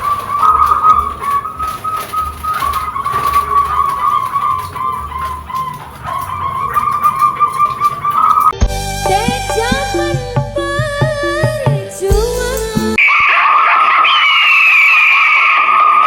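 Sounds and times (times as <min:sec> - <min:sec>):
dove cooing trill: 0:00.0 - 0:10.1.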